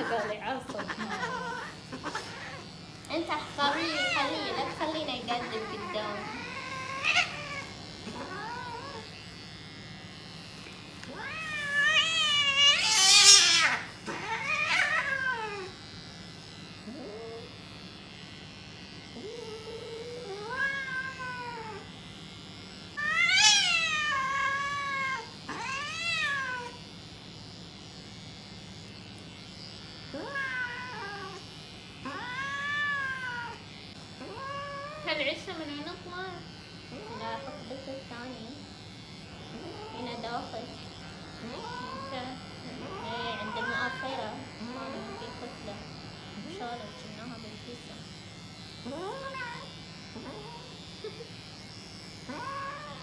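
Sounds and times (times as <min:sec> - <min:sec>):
cat yowling and meowing: 0:00.0 - 0:02.7, 0:03.6 - 0:09.1, 0:11.1 - 0:15.8, 0:19.2 - 0:21.9, 0:23.0 - 0:26.8, 0:30.1 - 0:31.4, 0:32.0 - 0:33.6, 0:34.2 - 0:35.2, 0:41.4 - 0:45.4, 0:49.1 - 0:50.7, 0:52.3 - 0:53.0.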